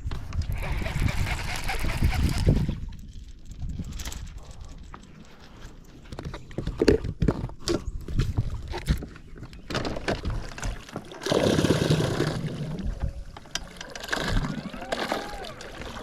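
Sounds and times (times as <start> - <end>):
knocks and clatter in boat: 6.1 - 11.1.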